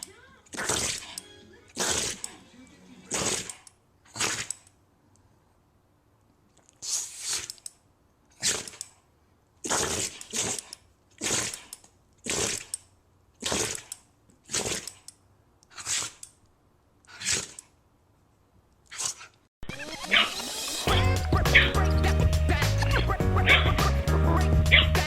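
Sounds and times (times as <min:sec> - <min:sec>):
dog sneezing: 0:03.1 - 0:04.6, 0:06.8 - 0:07.5, 0:15.7 - 0:16.2, 0:17.1 - 0:17.6.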